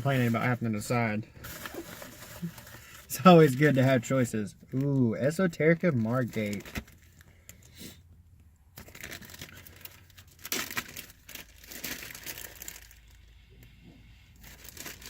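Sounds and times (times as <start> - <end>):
plastic bag crinkling: 1.4 - 4.0, 8.8 - 13.2, 14.4 - 15.0.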